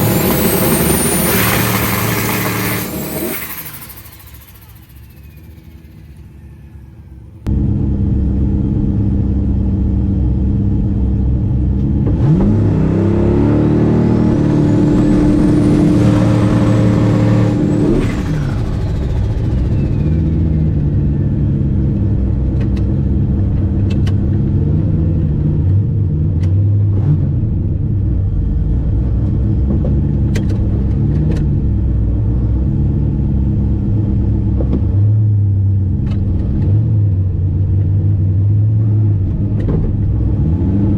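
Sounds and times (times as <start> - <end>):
turbo whistle: 0.0 - 7.4
drag car engine revving: 0.0 - 35.1.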